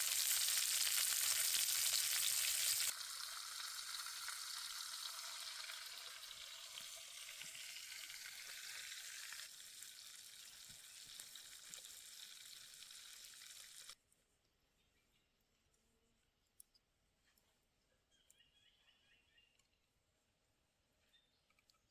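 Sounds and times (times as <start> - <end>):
food sizzling in skillet: 0.0 - 14.0.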